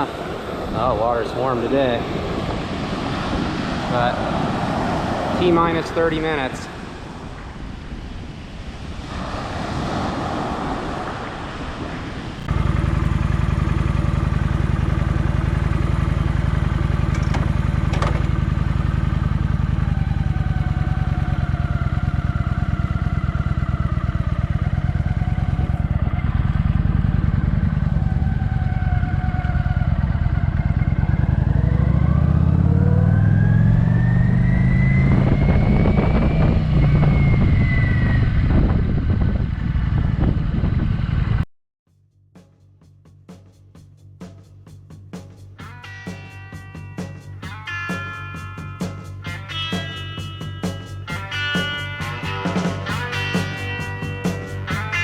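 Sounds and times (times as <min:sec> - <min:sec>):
motorcycle engine running: 0:12.4 - 0:41.4, 0:42.4 - 0:55.0.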